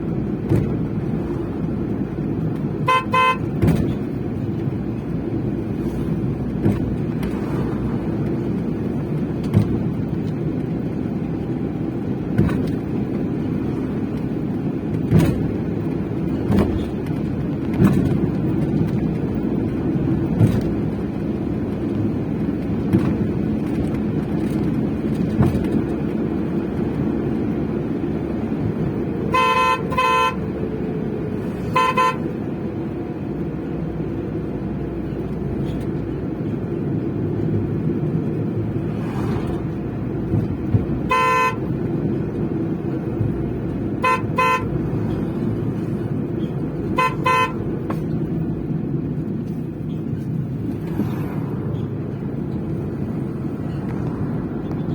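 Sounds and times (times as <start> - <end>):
van engine and road noise: 0.0 - 54.9
car horn tooting: 2.8 - 3.7, 29.2 - 30.5, 31.7 - 32.4, 41.0 - 41.8, 44.0 - 44.8, 46.8 - 47.8.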